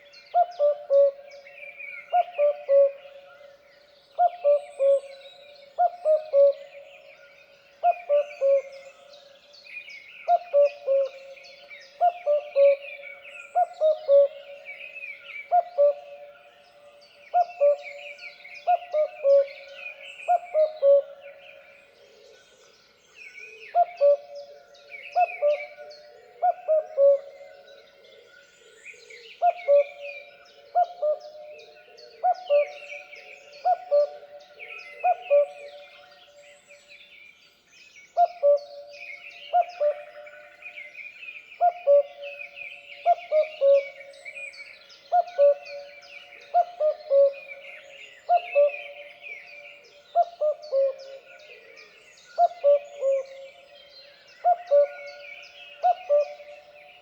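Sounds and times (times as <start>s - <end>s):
cuckoo calling: 0.0s - 1.4s, 2.1s - 3.2s, 4.2s - 7.0s, 7.8s - 8.8s, 10.3s - 11.4s, 12.0s - 12.8s, 13.5s - 14.8s, 15.4s - 16.3s, 17.4s - 21.2s, 23.8s - 24.4s, 25.1s - 27.6s, 29.4s - 30.1s, 32.2s - 35.8s, 38.2s - 40.7s, 41.6s - 44.4s, 45.0s - 51.3s, 52.4s - 53.7s, 54.4s - 57.0s.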